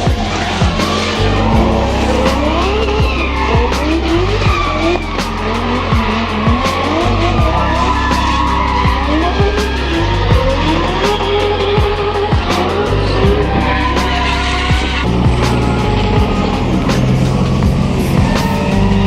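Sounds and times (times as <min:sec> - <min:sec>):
car engine revving: 0:00.0 - 0:19.0
electronic music with kick drum: 0:00.0 - 0:19.0
tyres squealing and skidding: 0:00.0 - 0:19.0.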